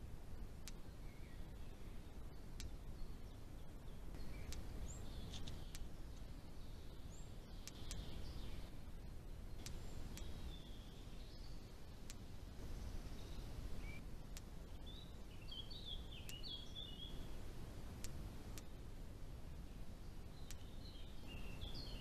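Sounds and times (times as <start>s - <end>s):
low background noise: 0.0s - 22.0s
songbird chirping: 0.0s - 22.0s
faint sharp ticks: 0.6s - 0.9s, 2.5s - 2.8s, 4.1s - 6.3s, 7.6s - 8.2s, 9.6s - 10.4s, 12.0s - 12.2s, 13.8s - 14.8s, 16.2s - 16.5s, 18.0s - 18.7s, 20.4s - 20.7s.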